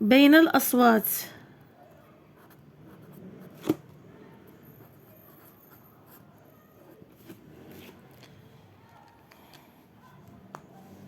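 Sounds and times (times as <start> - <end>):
pen scratching on paper: 2.3 - 8.4.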